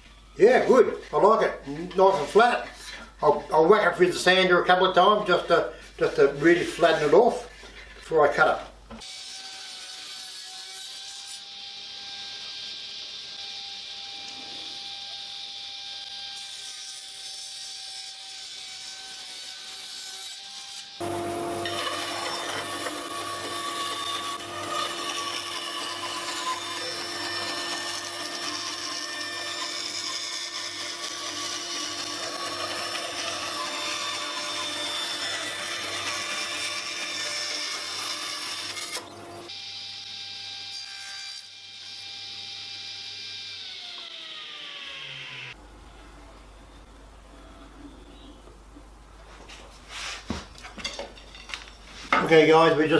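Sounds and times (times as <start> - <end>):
power sander on wood: 20.9 - 40.7, 41.9 - 45.6.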